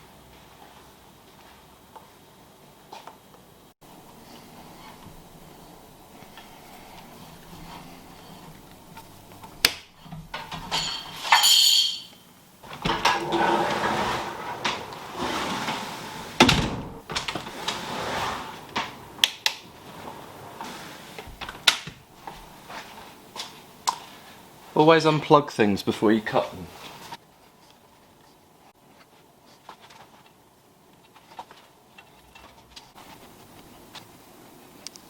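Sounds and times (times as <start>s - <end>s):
scraping and rustling: 4.2s - 11.4s, 12.6s - 16.4s, 17.2s - 19.1s, 19.7s - 21.6s, 26.6s - 34.2s.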